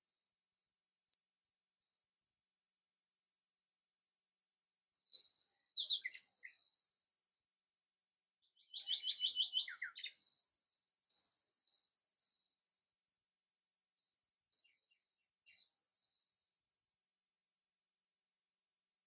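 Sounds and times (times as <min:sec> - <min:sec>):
songbird singing: 0:04.9 - 0:07.3, 0:08.4 - 0:12.9, 0:14.0 - 0:16.6.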